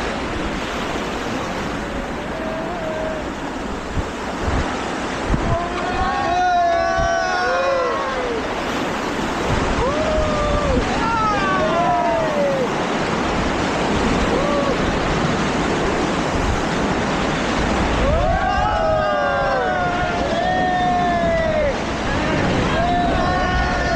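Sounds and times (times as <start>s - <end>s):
rushing water: 0.0s - 23.9s
wind buffeting microphone: 0.0s - 23.9s
people shouting: 5.4s - 8.7s, 9.7s - 12.8s, 17.9s - 23.9s.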